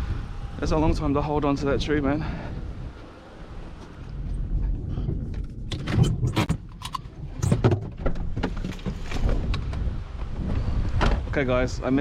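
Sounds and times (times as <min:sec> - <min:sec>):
steady low rumble: 0:00.0 - 0:12.0
objects knocking and clunking: 0:04.9 - 0:09.8.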